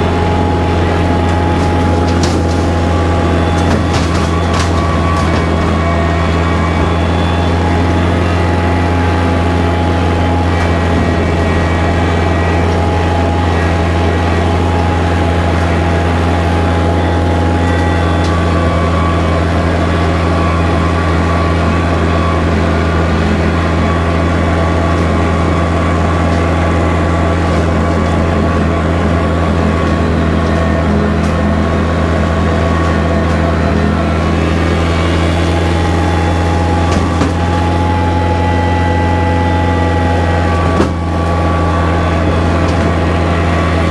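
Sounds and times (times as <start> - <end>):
tractor diesel engine droning: 0.0 - 43.9.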